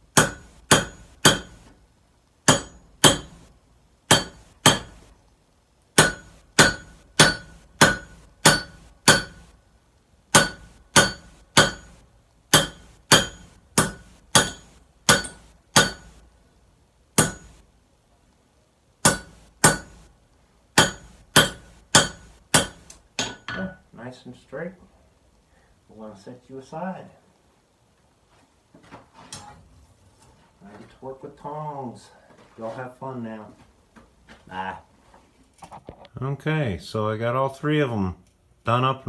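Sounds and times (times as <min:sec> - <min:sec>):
hammer ringing on anvil: 0:00.2 - 0:01.6, 0:02.5 - 0:03.4, 0:04.1 - 0:04.9, 0:06.0 - 0:09.4, 0:10.4 - 0:11.9, 0:12.6 - 0:16.1, 0:17.2 - 0:17.5, 0:19.1 - 0:20.0, 0:20.8 - 0:23.8.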